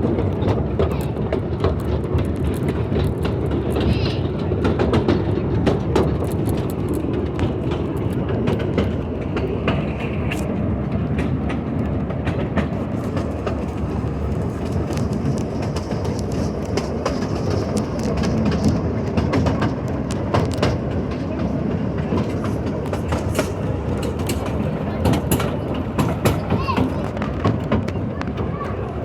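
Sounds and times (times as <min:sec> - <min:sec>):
train rumbling: 0:00.0 - 0:29.0
wheels clacking: 0:00.0 - 0:29.0.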